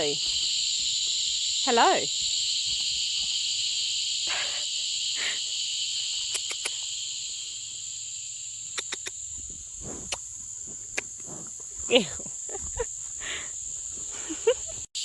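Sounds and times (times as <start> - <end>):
crickets chirping: 0.0 - 15.0
short sharp clicks: 6.3 - 6.8.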